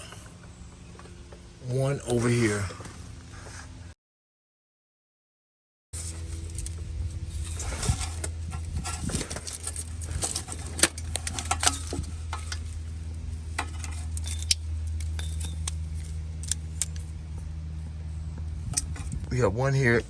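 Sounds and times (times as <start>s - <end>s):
steady low hum: 6.0s - 20.0s
light metallic clinks: 13.6s - 17.1s.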